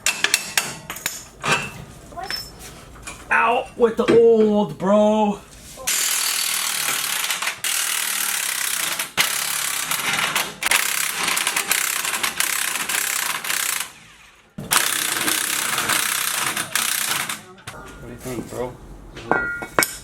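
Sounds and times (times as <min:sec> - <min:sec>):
impact wrench rattling: 0:05.9 - 0:17.5.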